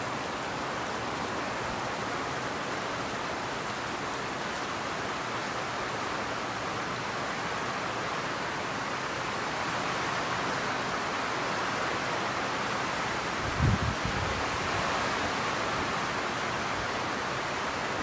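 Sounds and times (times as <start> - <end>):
torrential rain falling: 0.0 - 18.0.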